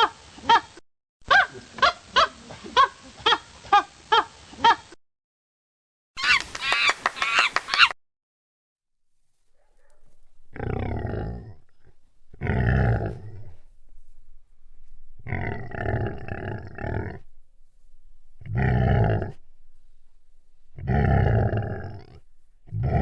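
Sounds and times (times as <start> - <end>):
large animal low calls: 9.7 - 23.0.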